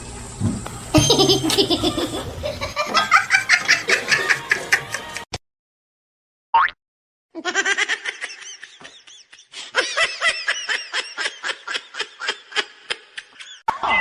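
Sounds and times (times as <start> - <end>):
person laughing hard: 1.0 - 5.2, 7.4 - 13.6.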